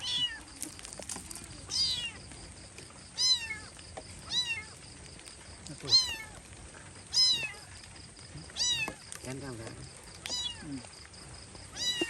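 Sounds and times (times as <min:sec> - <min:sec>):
kitten meowing: 0:01.7 - 0:02.2, 0:05.9 - 0:06.4, 0:07.1 - 0:07.7, 0:08.6 - 0:09.0, 0:10.3 - 0:10.8, 0:11.8 - 0:12.0.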